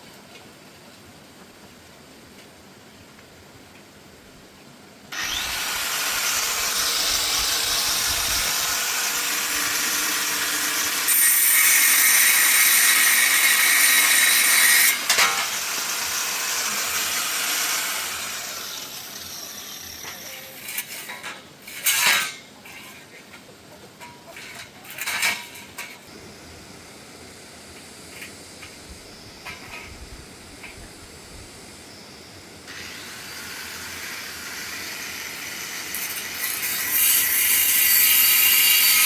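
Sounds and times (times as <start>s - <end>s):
power tool running with whine: 5.2s - 20.2s.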